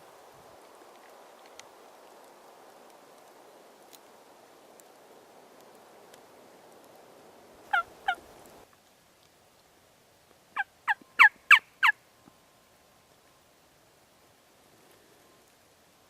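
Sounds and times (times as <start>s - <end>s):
turkey yelps: 7.7s - 8.2s, 10.6s - 12.0s.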